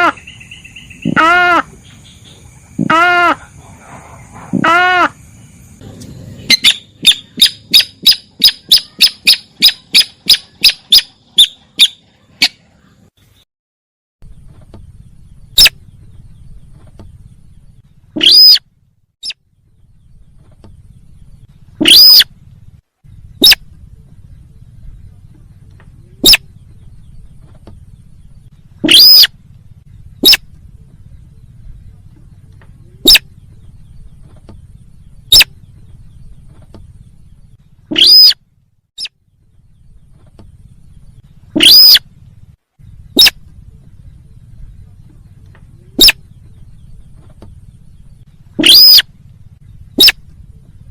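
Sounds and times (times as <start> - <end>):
high bird calls: 0.0 - 13.1, 18.1 - 18.6, 20.1 - 22.4, 23.1 - 24.7, 25.9 - 38.4, 39.8 - 42.2, 42.8 - 50.8
low steady hum: 0.0 - 13.4, 14.2 - 50.9
bird call lure sharp short notes: 21.8 - 22.3, 28.8 - 29.3, 41.6 - 42.0, 43.2 - 43.4, 48.6 - 49.1.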